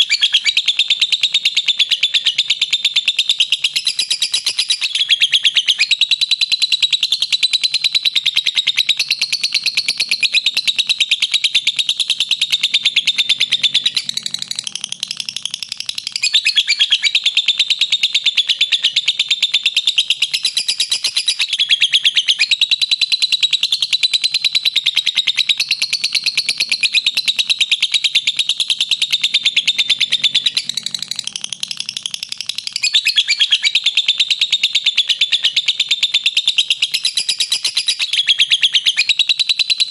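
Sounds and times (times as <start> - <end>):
lovebird shrill chattering trill: 0.0 - 0.8, 9.9 - 22.6, 24.2 - 39.9.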